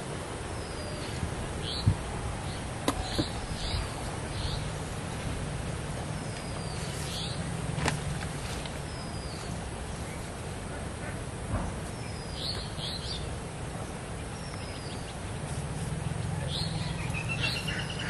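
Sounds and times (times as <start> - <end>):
birds chirping: 0.0 - 11.2, 11.8 - 18.0
steady hiss: 0.0 - 18.0.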